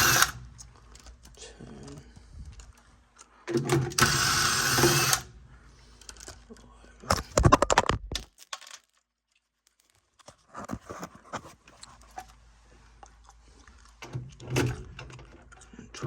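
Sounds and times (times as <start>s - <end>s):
metal parts clicking and rattling: 7.4s - 9.0s.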